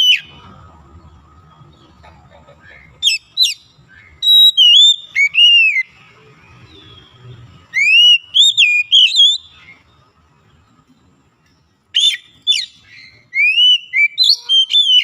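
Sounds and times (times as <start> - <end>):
bird singing whistled phrases: 0.0 - 0.4, 3.0 - 5.9, 6.8 - 9.8, 11.9 - 15.0.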